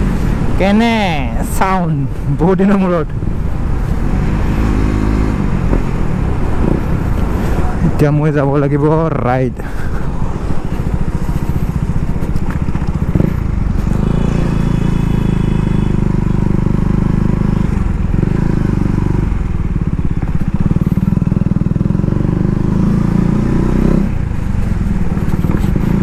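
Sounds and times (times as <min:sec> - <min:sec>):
motorcycle engine running: 0:09.6 - 0:26.0.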